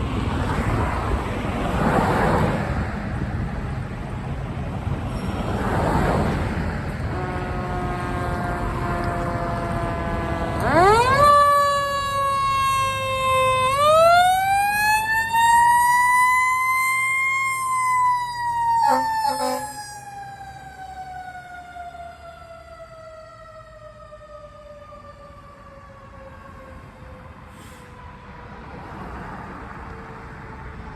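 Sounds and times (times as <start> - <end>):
steady horn tone: 6.9 - 14.4, 18.7 - 20.0
short sharp horn blasts: 7.0 - 11.2, 18.8 - 20.0
fire engine siren winding: 7.2 - 25.2.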